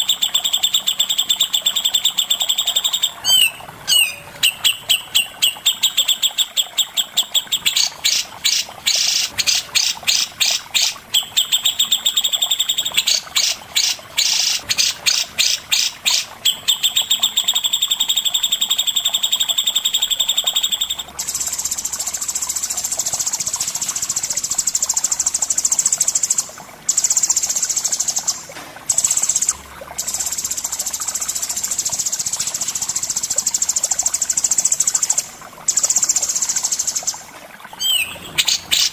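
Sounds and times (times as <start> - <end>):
songbird chirping and trilling: 0.0 - 21.8, 34.4 - 38.9.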